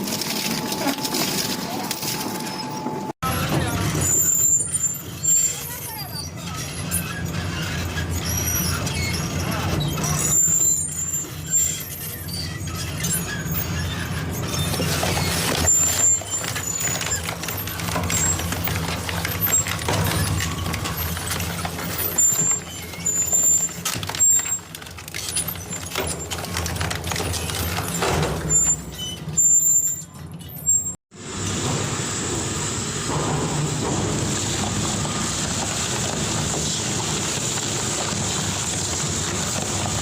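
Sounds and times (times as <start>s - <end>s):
metal shredder machine hum: 0.0s - 29.8s, 31.2s - 40.0s
high metal squeals: 0.0s - 31.0s
scrap metal cracks and bangs: 12.5s - 30.3s, 31.3s - 40.0s.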